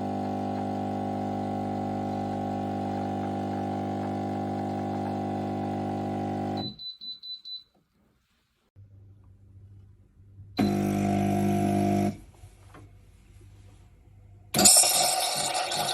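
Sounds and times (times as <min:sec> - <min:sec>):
espresso machine pump buzzing: 0:00.0 - 0:06.6, 0:10.6 - 0:12.2.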